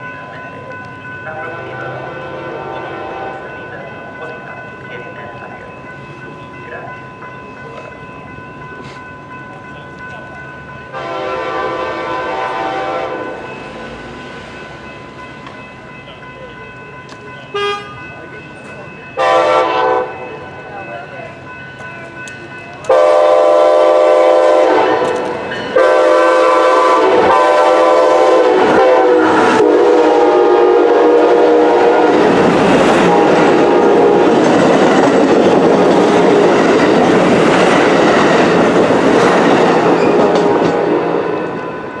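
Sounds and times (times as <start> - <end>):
train air horn blasts: 1.5 - 3.5, 10.9 - 13.5, 17.6 - 18.0, 19.2 - 20.3, 22.9 - 32.3, 33.0 - 34.4, 40.2 - 41.4
train wheels clattering on rails: 13.3 - 29.7, 31.2 - 42.0.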